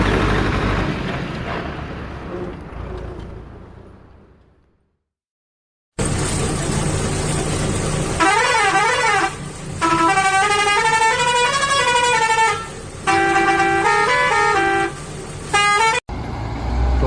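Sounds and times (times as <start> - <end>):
truck engine running: 6.0 - 17.0
multi-note musical horn: 8.2 - 16.0.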